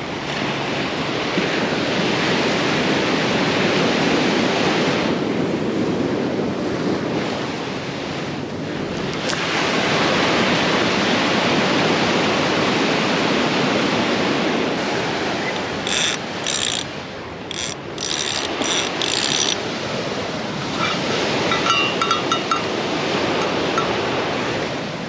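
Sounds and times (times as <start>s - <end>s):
surf washing on shore: 0.0s - 25.0s
fishing reel clicking: 15.8s - 16.9s, 17.5s - 19.6s.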